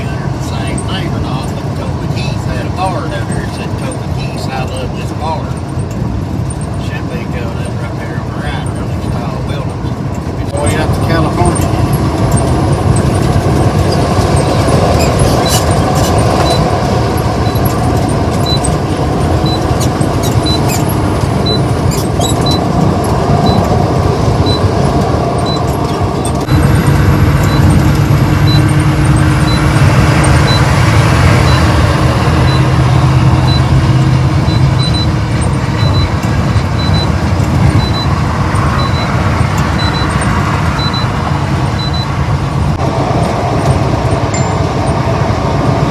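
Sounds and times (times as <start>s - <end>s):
vehicle road noise at speed: 0.0s - 45.9s
wind noise: 9.7s - 45.9s.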